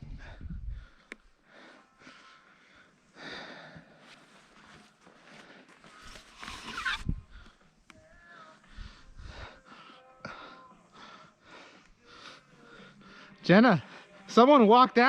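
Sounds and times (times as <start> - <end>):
person breathing hard: 0.0 - 6.3, 7.2 - 14.3.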